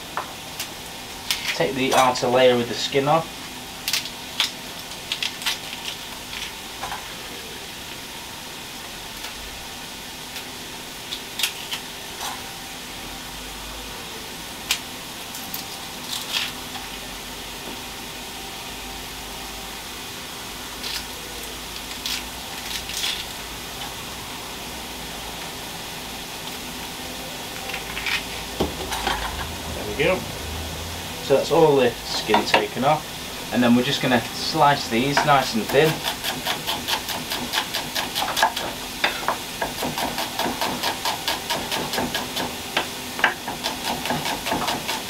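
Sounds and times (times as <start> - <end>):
vegetables sizzling in oil: 3.3 - 13.4, 19.7 - 45.0.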